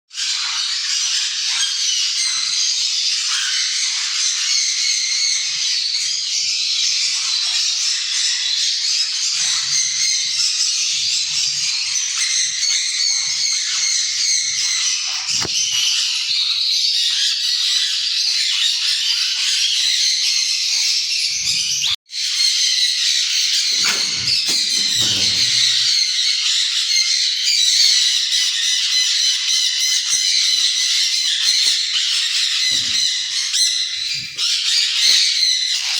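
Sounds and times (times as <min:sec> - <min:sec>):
parrots chattering and squawking: 0:00.1 - 0:05.6, 0:08.9 - 0:20.2, 0:23.5 - 0:26.3, 0:28.9 - 0:35.9.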